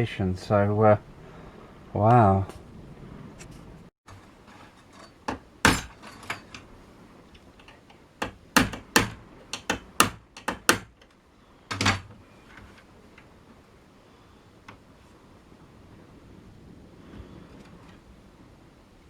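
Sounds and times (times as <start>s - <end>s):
sharp clicks and knocks: 7.3s - 13.3s.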